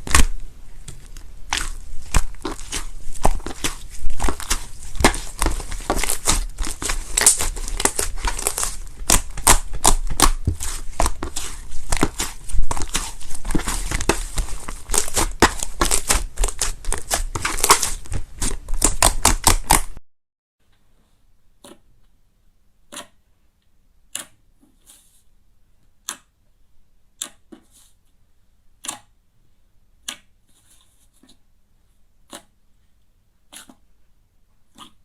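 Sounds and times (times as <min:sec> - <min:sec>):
slime crackling and popping: 0:00.0 - 0:20.0.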